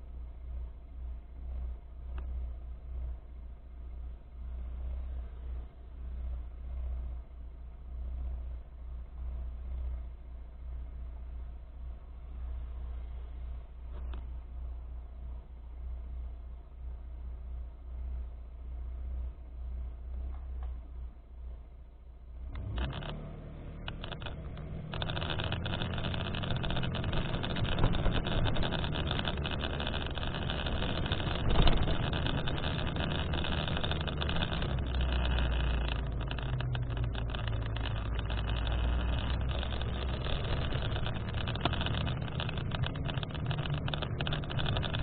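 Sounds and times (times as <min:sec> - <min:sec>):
rushing noise with low rumble: 0:00.0 - 0:45.0.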